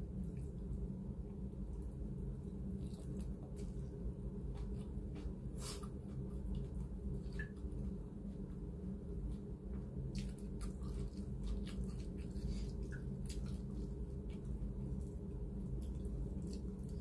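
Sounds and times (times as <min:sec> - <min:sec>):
steady low hum: 0:00.0 - 0:17.0
chewing with wet mouth clicks: 0:10.1 - 0:17.0.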